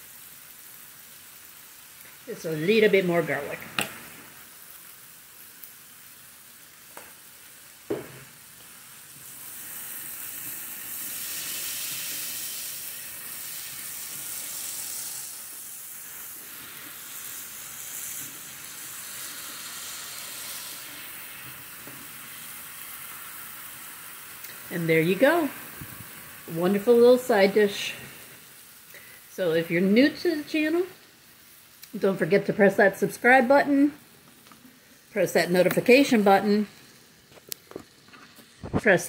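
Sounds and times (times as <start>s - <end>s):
vegetables sizzling in a skillet: 0.0s - 39.0s
knock: 7.9s - 8.2s.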